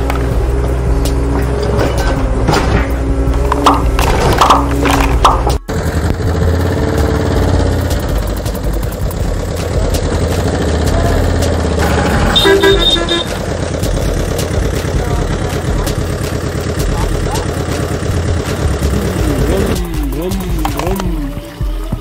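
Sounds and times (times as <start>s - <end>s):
music playing: 0.0s - 22.0s
vehicle motor running: 0.0s - 22.0s
quick horn beeps: 11.9s - 13.4s.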